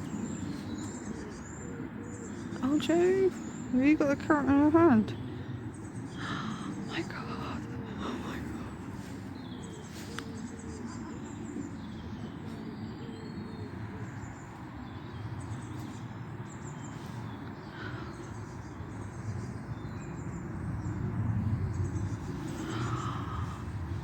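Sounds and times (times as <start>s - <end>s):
small birds twittering: 0.0s - 24.0s
low rumbling background: 10.6s - 24.0s.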